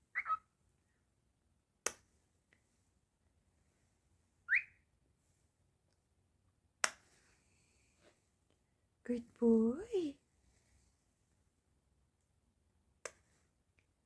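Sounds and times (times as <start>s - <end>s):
cockatiel whistled chirp: 0.1s - 0.4s, 4.5s - 4.8s.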